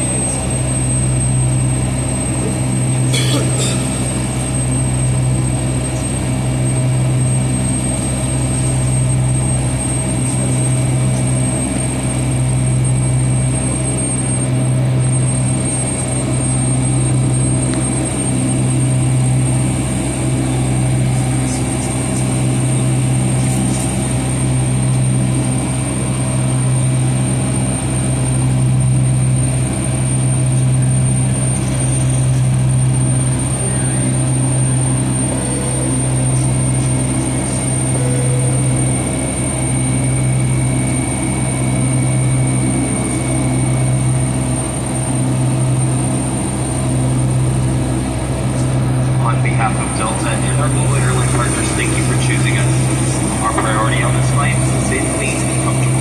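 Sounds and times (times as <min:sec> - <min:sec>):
aircraft cabin drone: 0:00.0 - 0:56.0
thin high whine: 0:33.2 - 0:43.9, 0:48.4 - 0:56.0.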